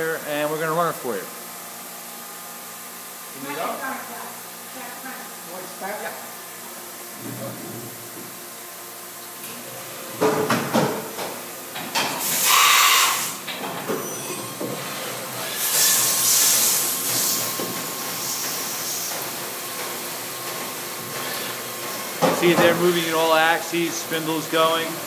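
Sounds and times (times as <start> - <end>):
loud hissing bursts: 12.2 - 13.4, 15.4 - 17.5.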